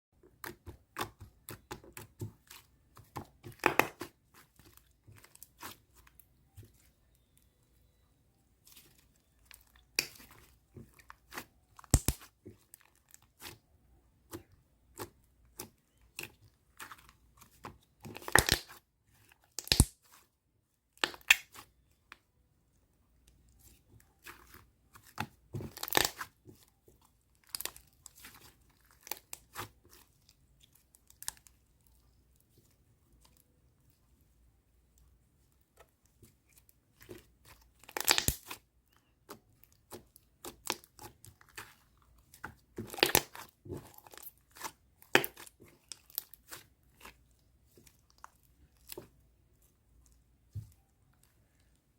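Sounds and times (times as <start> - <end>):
slime squeezed by hands: 24.2 - 26.4, 37.0 - 38.6.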